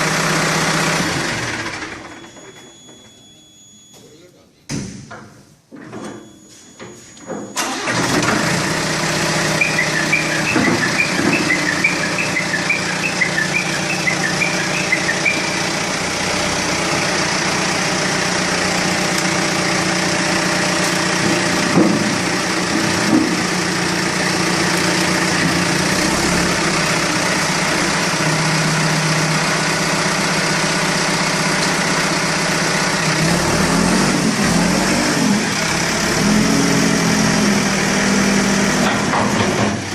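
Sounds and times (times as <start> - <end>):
diesel engine starting and running: 0.0 - 3.2, 7.3 - 39.9.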